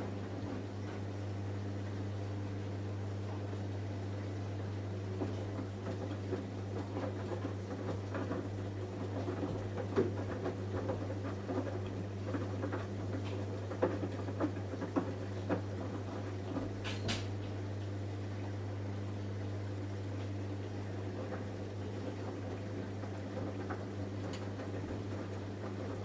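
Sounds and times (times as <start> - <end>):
washing machine motor hum: 0.0 - 26.0
drum load patter and clicks: 5.2 - 18.0, 20.2 - 26.0.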